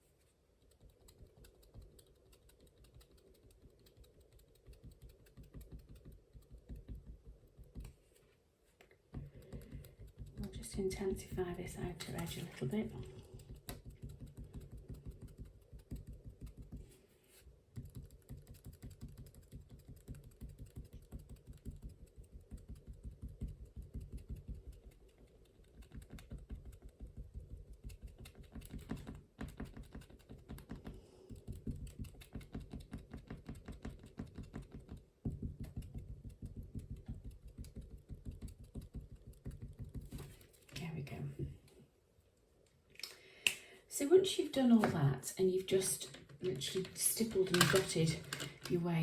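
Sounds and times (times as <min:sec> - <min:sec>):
pen tapping dots on paper: 0:00.7 - 0:08.0, 0:09.1 - 0:17.0, 0:17.7 - 0:40.4.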